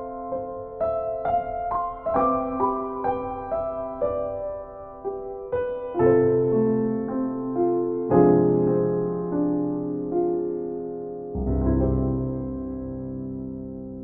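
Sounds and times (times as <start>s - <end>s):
gentle solo piano: 0.0s - 14.0s.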